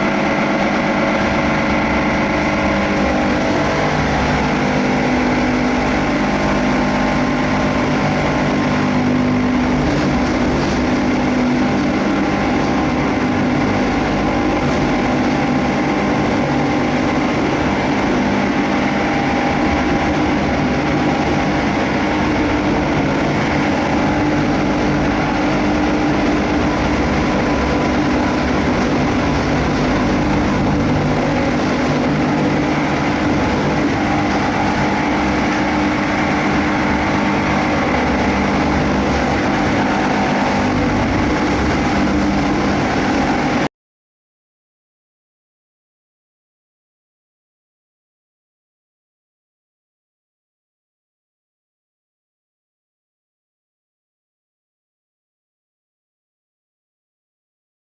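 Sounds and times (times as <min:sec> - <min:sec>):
plastic cutting machine running: 0:00.0 - 0:43.7.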